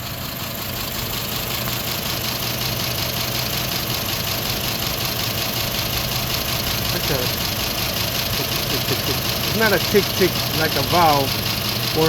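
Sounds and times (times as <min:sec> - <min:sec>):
truck engine idling with clatter: 0:00.0 - 0:12.0.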